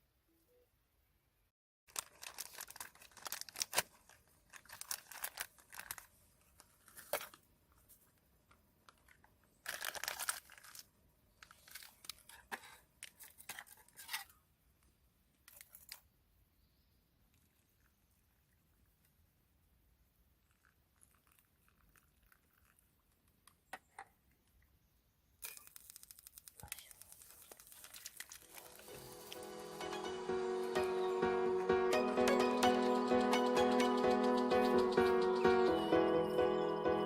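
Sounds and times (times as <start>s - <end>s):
rustling and crinkling material: 1.9s - 14.4s, 25.6s - 29.6s.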